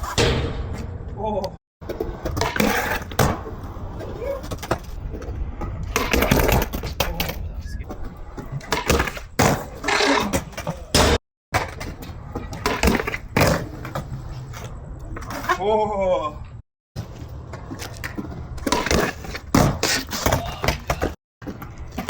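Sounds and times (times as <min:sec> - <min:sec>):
skateboards rolling on concrete: 0:01.8 - 0:16.4, 0:17.0 - 0:22.0.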